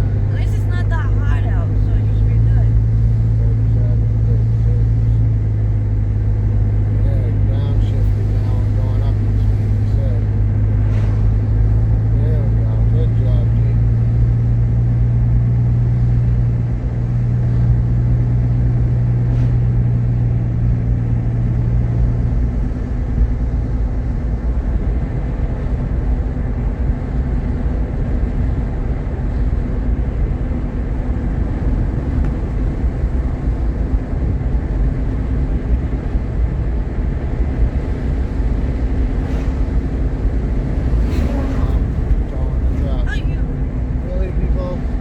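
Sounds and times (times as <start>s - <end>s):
car engine and tyres rumbling: 0.0s - 45.0s
strong low drone: 0.0s - 45.0s.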